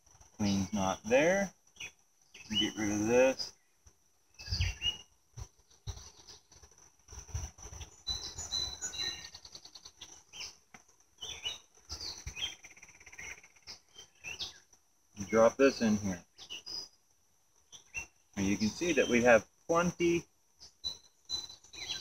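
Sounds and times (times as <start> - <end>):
birds chirping: 0.3 - 22.0.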